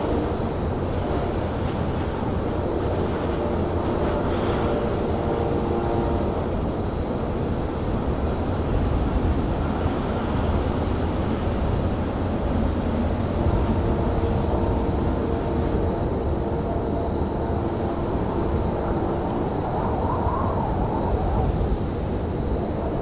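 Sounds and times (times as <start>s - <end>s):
thin high whine: 0.0s - 12.4s
faint multi-tone hum: 0.0s - 23.0s.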